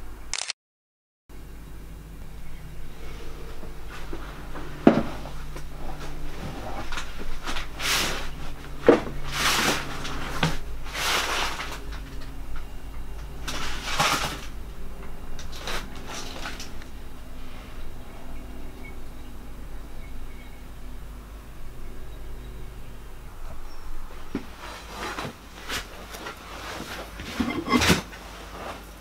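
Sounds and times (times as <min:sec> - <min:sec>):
faint steady hum: 0:01.3 - 0:29.0
rustling handling noise: 0:02.6 - 0:19.0, 0:23.3 - 0:29.0.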